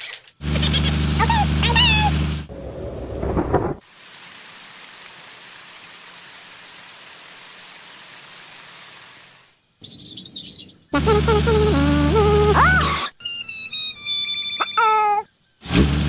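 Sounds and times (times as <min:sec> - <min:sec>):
rain falling: 0:03.8 - 0:09.5
high wavering bird chirps: 0:09.7 - 0:11.7, 0:13.2 - 0:15.6.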